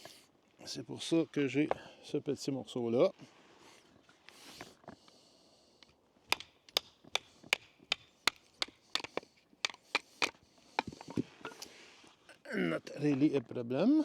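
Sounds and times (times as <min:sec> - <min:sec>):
knife splitting firewood: 0:06.2 - 0:11.8.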